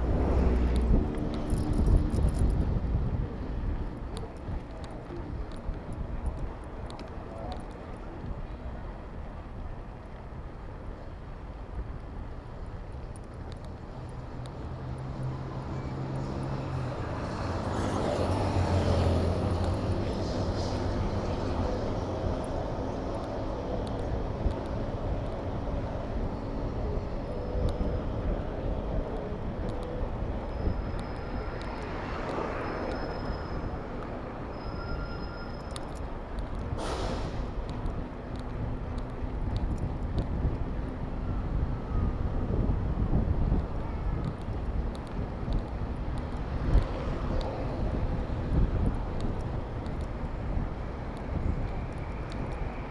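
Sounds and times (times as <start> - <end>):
vehicle engines running: 0.0 - 8.2, 12.4 - 52.9
city traffic: 0.0 - 52.9
wind rumble on microphone: 0.0 - 52.9
short loud hiss: 36.8 - 37.4.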